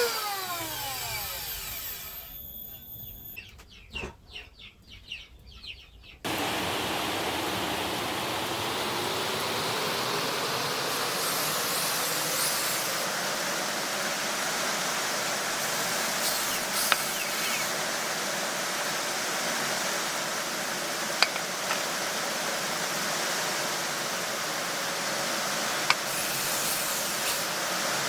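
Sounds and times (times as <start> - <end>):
birds chirping: 2.4 - 6.6, 16.1 - 17.8
loud steady rushing noise: 6.3 - 12.3.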